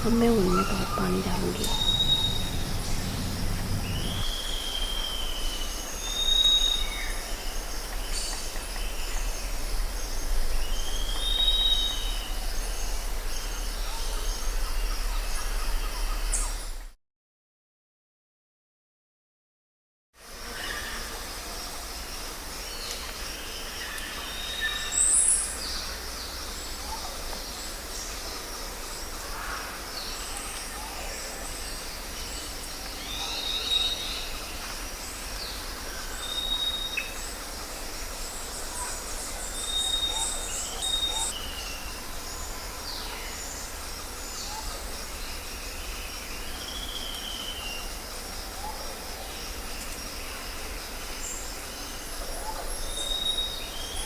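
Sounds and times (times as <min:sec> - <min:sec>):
low background hum: 0:00.0 - 0:04.3
birds chirping and whistling: 0:00.0 - 0:05.3.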